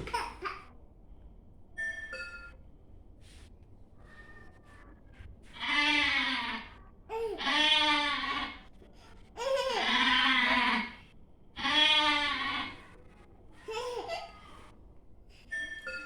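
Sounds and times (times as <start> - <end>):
goat bleating: 5.6 - 6.7, 7.4 - 8.6, 9.8 - 11.0, 11.6 - 12.8.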